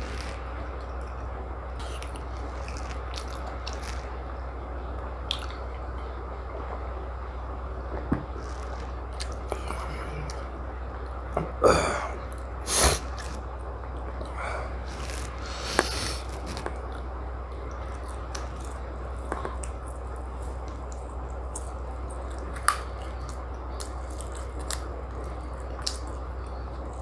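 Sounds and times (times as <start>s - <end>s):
person chewing food: 0.0s - 4.3s, 5.3s - 5.8s, 8.2s - 27.0s
steady low hum: 0.0s - 27.0s
wet mouth clicks: 1.8s - 4.1s, 12.3s - 13.4s, 14.2s - 17.0s
loud sniffs: 12.6s - 13.4s, 14.4s - 16.7s.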